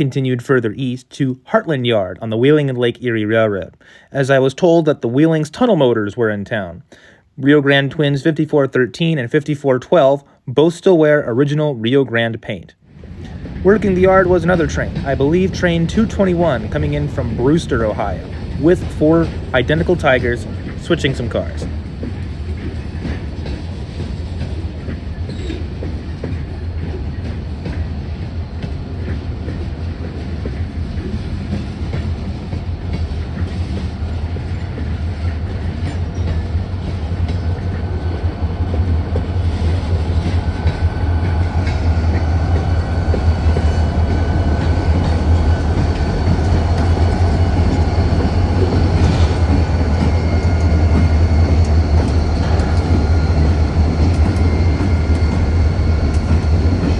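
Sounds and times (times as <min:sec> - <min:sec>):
diesel locomotive engines droning: 0:12.8 - 0:56.9.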